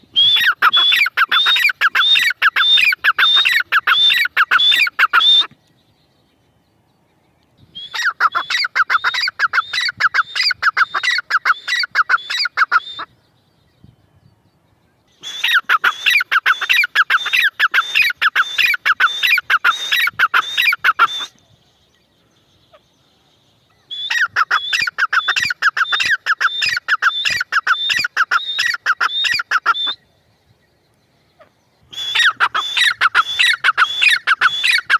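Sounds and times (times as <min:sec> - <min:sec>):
francolin shrill calls: 0:00.1 - 0:05.6, 0:07.6 - 0:13.2, 0:15.1 - 0:21.8, 0:23.7 - 0:30.2, 0:31.2 - 0:34.9.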